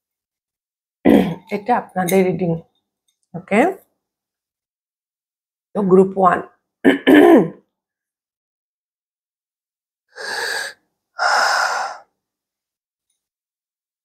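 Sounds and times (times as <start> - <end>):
woman breathing deeply: 10.1 - 12.1.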